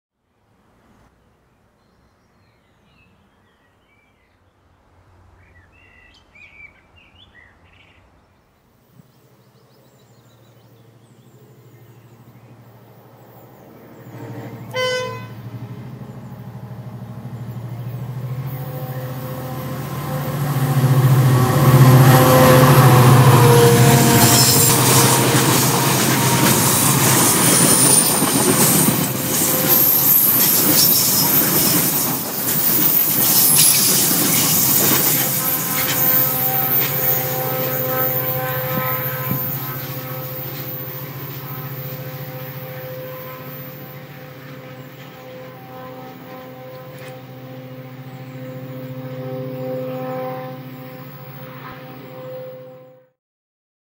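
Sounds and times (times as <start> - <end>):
diesel locomotive engine drone: 8.8 - 53.0
locomotive horn: 14.0 - 53.2
high wheel squeal: 22.0 - 44.0.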